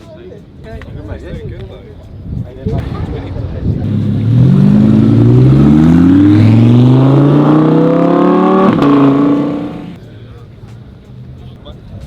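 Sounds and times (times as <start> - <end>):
car engine accelerating: 3.8 - 10.0.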